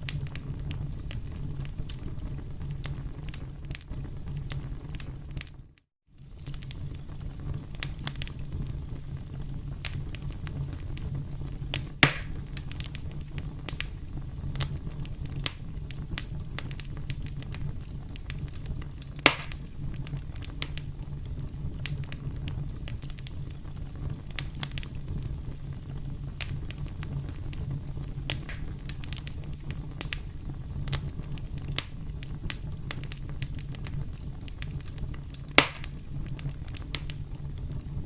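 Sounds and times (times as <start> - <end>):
campfire crackling: 0.0 - 38.0
loud wood pops: 12.0 - 12.4, 19.2 - 19.7, 35.6 - 36.0.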